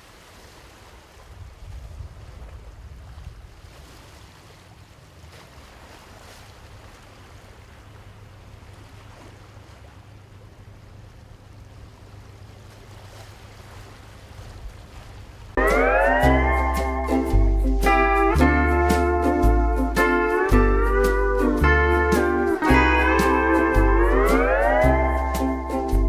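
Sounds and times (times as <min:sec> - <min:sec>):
water noise: 0:00.0 - 0:26.0
wind: 0:00.0 - 0:26.0
steady low rumble: 0:14.6 - 0:26.0.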